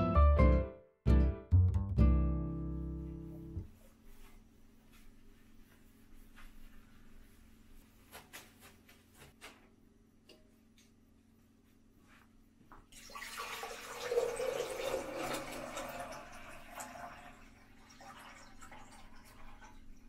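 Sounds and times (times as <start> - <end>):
water pouring into glass vase: 12.9 - 20.0.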